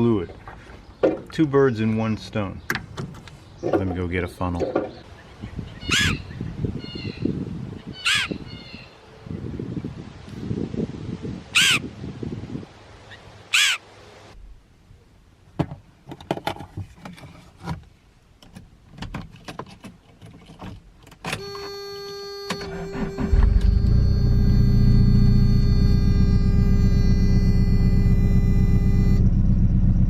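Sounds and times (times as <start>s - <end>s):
clicks and knocks: 4.6s - 5.0s
bird harsh calls: 4.6s - 7.3s, 7.9s - 9.0s, 11.5s - 11.8s, 13.1s - 13.9s
steady hum: 21.4s - 30.0s
low rumble: 22.8s - 30.0s.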